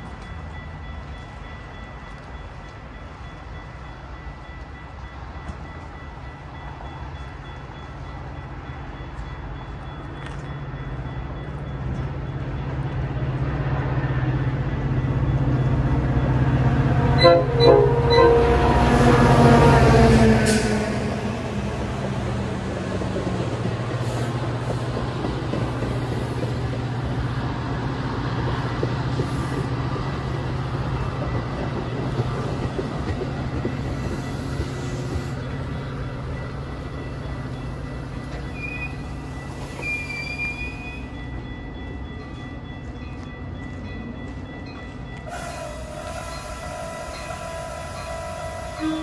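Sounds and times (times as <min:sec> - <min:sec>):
train rumbling past: 0:00.0 - 0:49.0
wheel squeals: 0:38.3 - 0:41.1.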